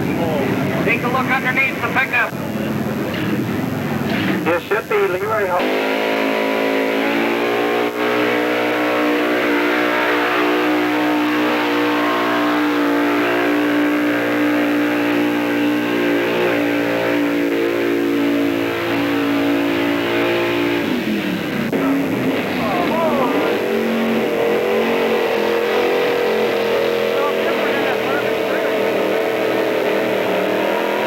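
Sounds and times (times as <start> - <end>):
pickup engine at full throttle: 0.0 - 31.0.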